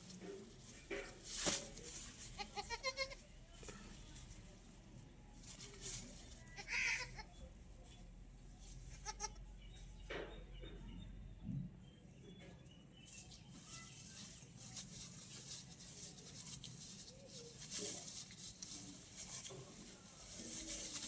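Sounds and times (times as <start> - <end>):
faint rustling: 0.0 - 9.1, 12.6 - 21.0
goat bleating: 2.4 - 3.2, 6.6 - 7.3, 8.9 - 9.4.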